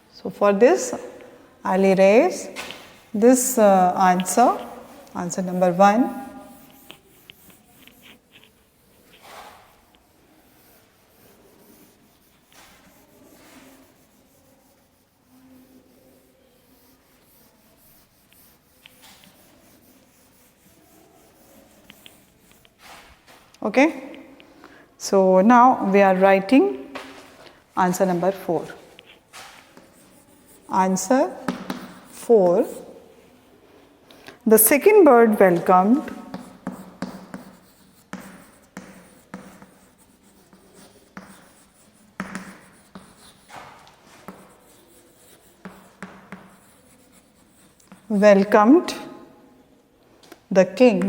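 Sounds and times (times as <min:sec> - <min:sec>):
rubbing and scraping on a board: 0:01.8 - 0:23.5, 0:27.9 - 0:33.2, 0:35.4 - 0:48.6.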